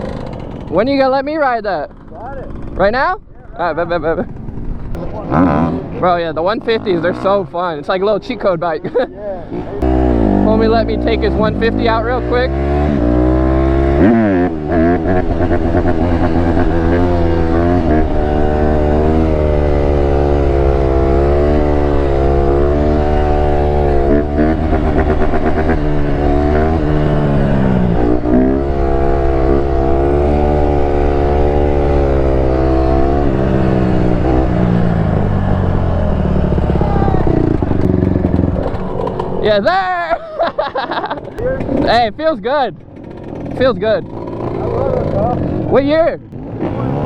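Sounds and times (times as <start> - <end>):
dirt bike engine revving: 0.0 - 3.2, 3.8 - 47.0.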